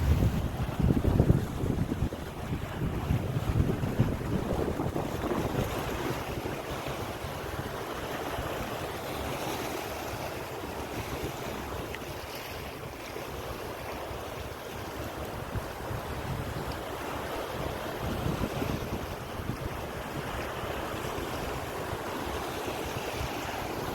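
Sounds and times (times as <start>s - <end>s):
wind buffeting microphone: 0.0s - 8.8s, 14.1s - 23.9s
sea waves washing onto beach: 0.0s - 23.9s.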